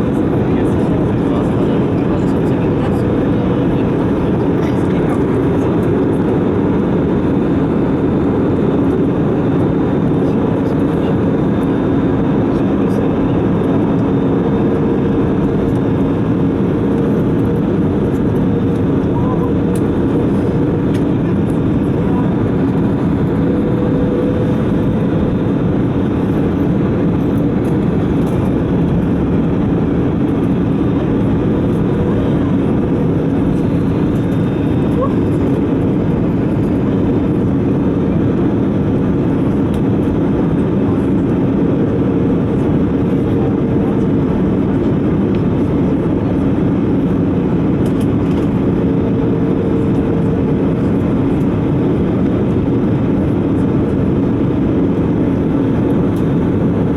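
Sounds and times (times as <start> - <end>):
low hum: 0.0 - 41.7
engine drone and rushing air: 0.0 - 56.9
higher tone: 23.2 - 25.4.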